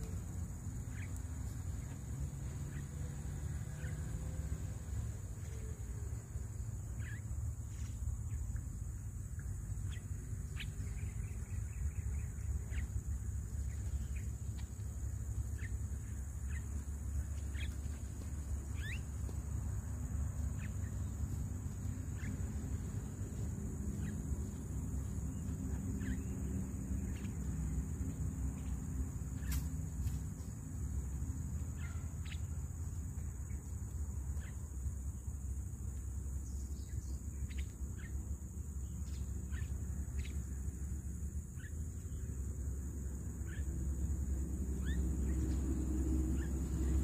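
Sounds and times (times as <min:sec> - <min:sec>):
high insect drone: 0:00.0 - 0:47.0
low steady rumble: 0:00.0 - 0:47.0
birds chirping and whistling: 0:17.4 - 0:18.0, 0:18.6 - 0:19.2, 0:23.9 - 0:27.5, 0:44.8 - 0:45.6.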